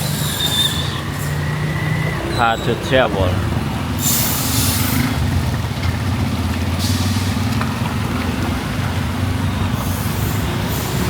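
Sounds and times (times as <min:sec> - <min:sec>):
rain and tyre spray hiss: 0:04.0 - 0:09.0, 0:09.7 - 0:11.0.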